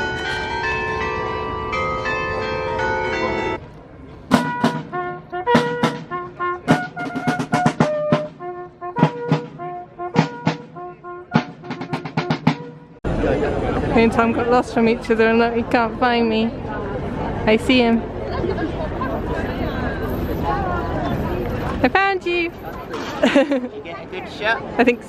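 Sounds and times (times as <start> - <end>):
sharp drum strikes: 4.3 - 8.4, 9.0 - 12.9
brass band playing: 4.3 - 13.0.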